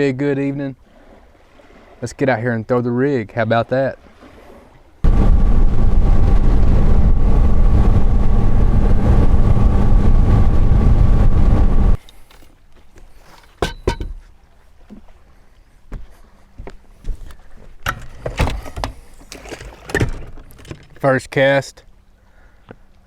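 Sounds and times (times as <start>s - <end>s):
wind rumble on microphone: 5.0s - 12.0s
outboard motor running: 5.0s - 12.5s.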